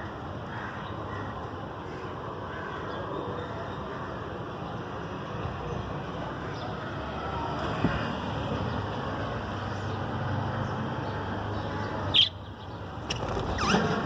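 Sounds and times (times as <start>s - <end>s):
budgerigars chirping: 12.1s - 13.7s.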